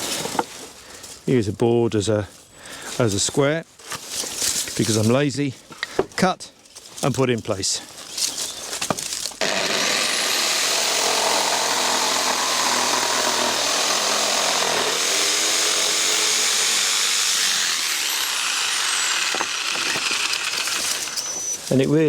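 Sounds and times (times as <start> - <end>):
power saw cutting timber: 9.4 - 21.7.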